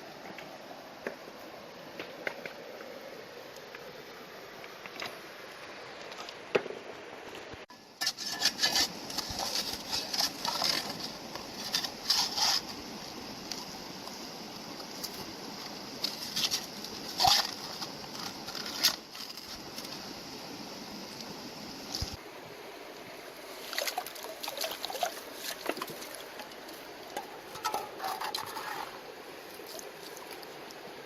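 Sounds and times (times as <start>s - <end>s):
river water flowing: 0.0s - 31.0s
gravel and rocks scraping: 8.0s - 13.8s, 14.6s - 20.2s, 23.6s - 30.6s.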